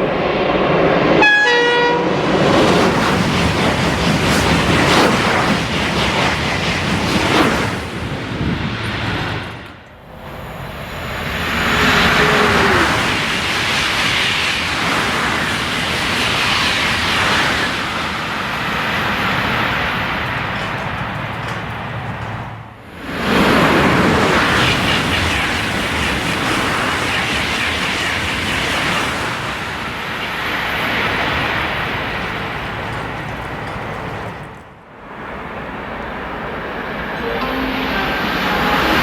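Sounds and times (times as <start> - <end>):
high-speed trains passing: 0.0 - 39.0.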